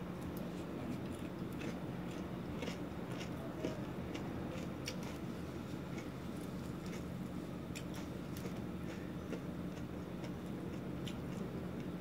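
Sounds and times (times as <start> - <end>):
steady low hum: 0.0 - 12.0
person chewing: 1.0 - 5.2, 7.7 - 11.4.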